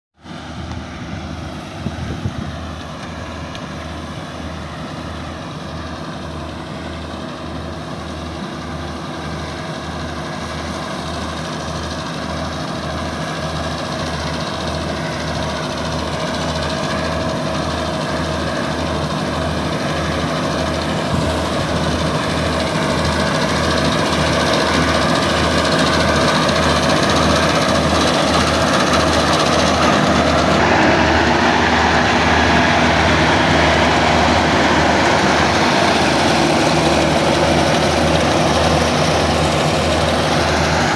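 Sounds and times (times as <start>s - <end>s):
harvesting machine engine running: 0.2s - 40.9s.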